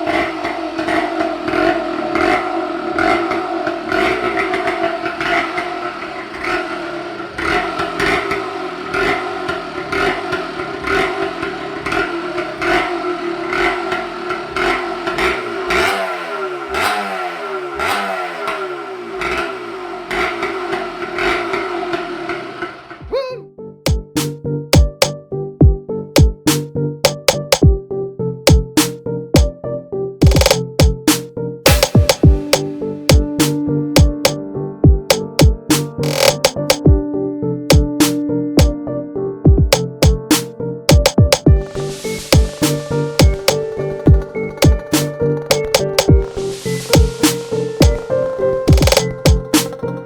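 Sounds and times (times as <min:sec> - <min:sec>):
engine throttle blips: 0:00.0 - 0:23.0, 0:39.7 - 0:50.0.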